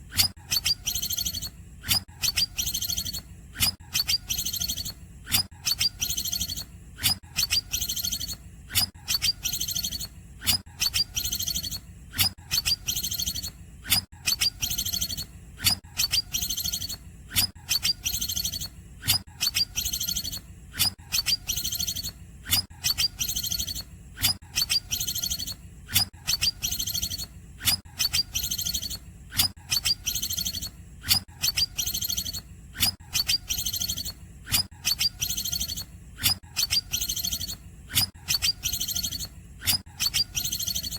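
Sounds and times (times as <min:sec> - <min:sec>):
bird singing high-pitched phrase: 0:00.5 - 0:01.5, 0:02.2 - 0:05.0, 0:05.6 - 0:06.7, 0:07.3 - 0:08.4, 0:09.0 - 0:10.2, 0:10.8 - 0:11.8, 0:12.5 - 0:13.6, 0:14.3 - 0:17.0, 0:17.7 - 0:18.7, 0:19.4 - 0:20.4, 0:21.1 - 0:22.2, 0:22.8 - 0:23.9, 0:24.6 - 0:25.6, 0:26.3 - 0:27.3, 0:28.0 - 0:29.0, 0:29.7 - 0:30.8, 0:31.4 - 0:34.2, 0:34.8 - 0:40.9.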